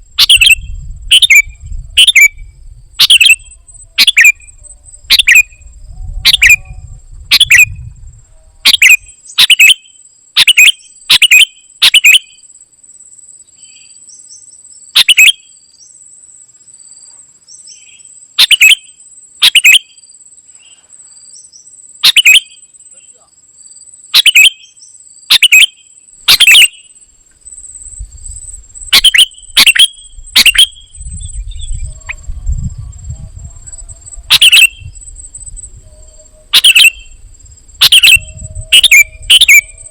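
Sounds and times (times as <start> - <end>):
high-pitched insect-like whine: 0.0 - 39.9
bulbul chirping: 0.2 - 2.4, 3.0 - 5.6, 8.7 - 9.8, 22.0 - 22.6, 24.2 - 24.6, 25.3 - 26.9, 28.8 - 32.2, 34.3 - 35.6, 36.5 - 37.2, 37.8 - 39.9.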